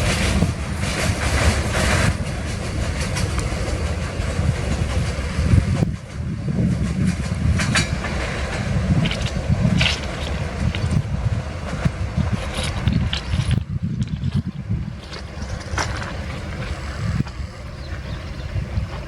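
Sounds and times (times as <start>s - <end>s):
train wagons rumbling: 0.0s - 19.0s
wheels clattering over rail joints: 0.0s - 19.0s.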